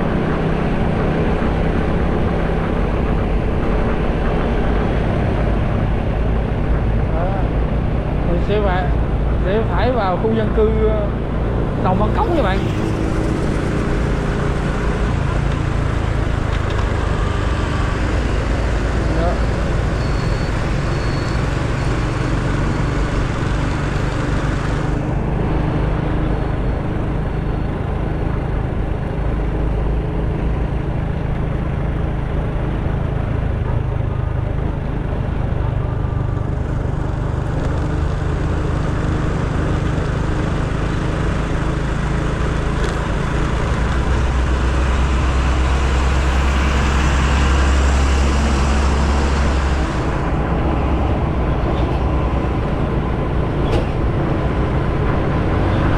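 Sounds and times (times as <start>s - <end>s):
deep engine rumble: 0.0s - 55.9s
motorcycle engine: 0.0s - 55.9s
road noise: 0.0s - 55.9s.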